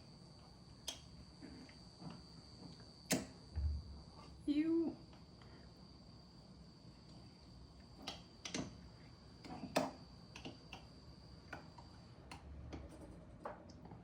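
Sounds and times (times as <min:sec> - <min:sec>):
faint high whine: 0:00.0 - 0:08.1.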